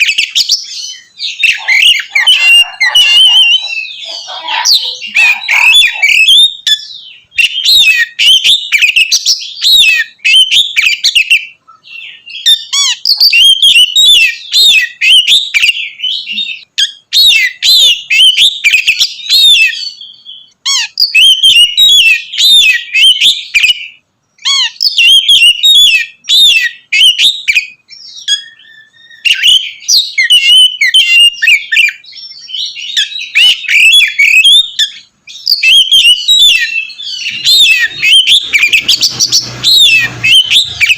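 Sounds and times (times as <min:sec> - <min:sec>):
magpie-robin singing: 0:00.0 - 0:40.9.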